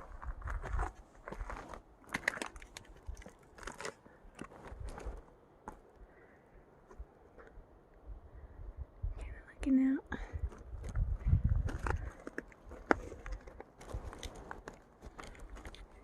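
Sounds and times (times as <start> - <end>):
apple crunching while chewed: 11.7 - 16.0.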